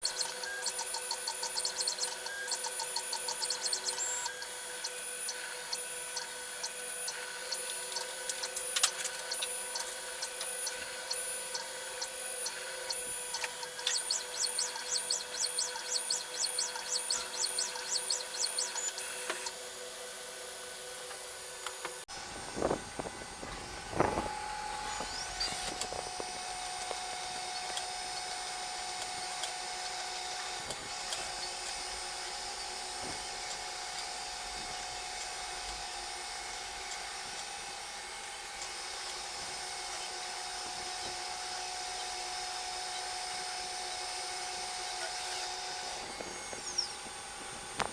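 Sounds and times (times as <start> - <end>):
cnc router motors whining: 0.0 - 47.9.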